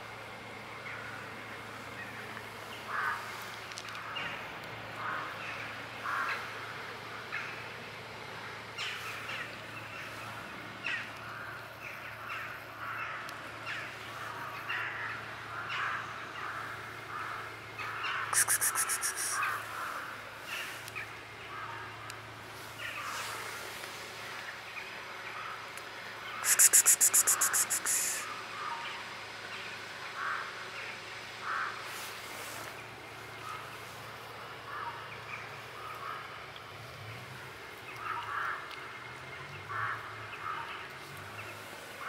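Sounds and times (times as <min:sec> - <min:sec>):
birds cawing: 0:05.0 - 0:06.5, 0:14.6 - 0:20.0, 0:30.2 - 0:30.8, 0:31.4 - 0:31.9, 0:38.0 - 0:38.7, 0:39.7 - 0:40.8
quick rattling call: 0:18.2 - 0:19.6, 0:26.4 - 0:28.3.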